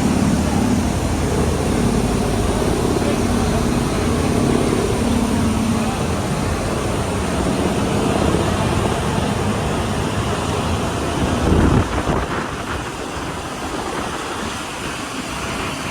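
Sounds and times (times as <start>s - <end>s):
hum: 0.0s - 10.6s
aircraft engine rumble: 0.0s - 15.9s.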